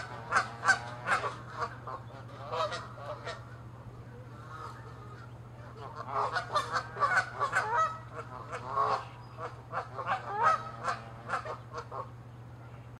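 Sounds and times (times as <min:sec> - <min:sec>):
geese honking: 0:00.0 - 0:12.2.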